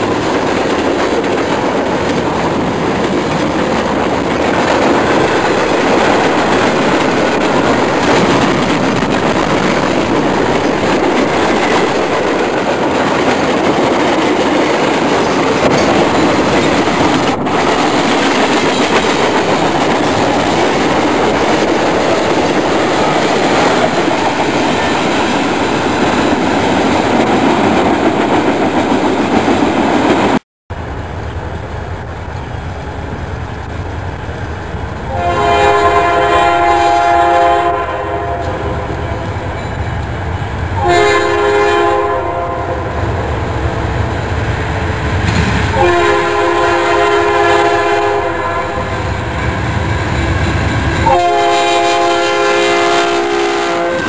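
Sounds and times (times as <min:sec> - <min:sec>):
wheels clattering over rail joints: 0:00.0 - 0:30.4
diesel locomotive engine rumbling: 0:00.0 - 0:54.0
train horn blast: 0:35.1 - 0:39.4, 0:40.8 - 0:44.0, 0:45.7 - 0:49.1, 0:51.0 - 0:54.0.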